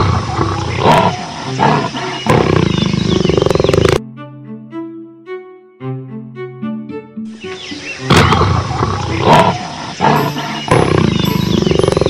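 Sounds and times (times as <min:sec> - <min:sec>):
big cat roaring and growling: 0:00.0 - 0:04.0, 0:08.1 - 0:12.0.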